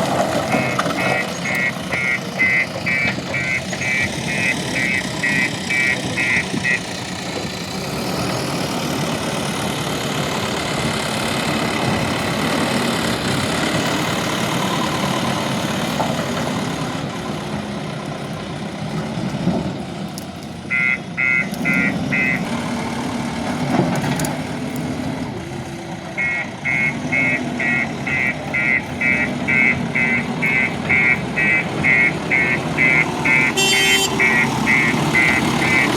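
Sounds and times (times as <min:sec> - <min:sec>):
diesel engine running: 0:00.0 - 0:35.9
rapid electronic beeps: 0:00.6 - 0:06.9, 0:26.2 - 0:35.9.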